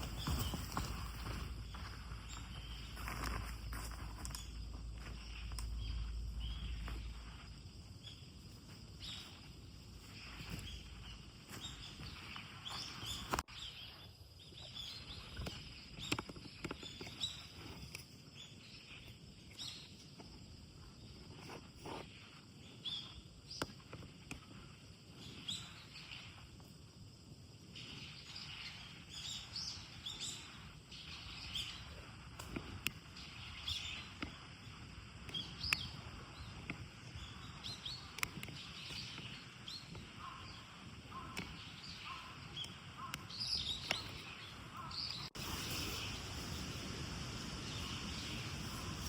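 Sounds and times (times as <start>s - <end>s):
footsteps knocking and rustling: 0.0s - 5.3s
bird chirps: 0.0s - 8.3s, 27.8s - 49.0s
wind rumble on microphone: 0.0s - 13.9s, 14.5s - 49.0s.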